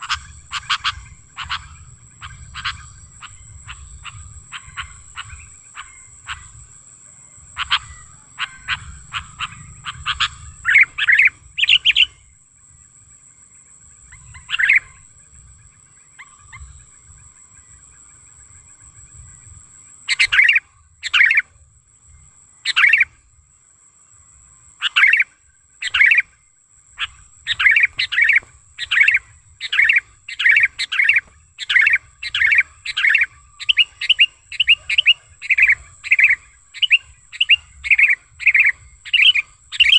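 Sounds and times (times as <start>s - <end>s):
faint high whine: 0.0s - 39.9s.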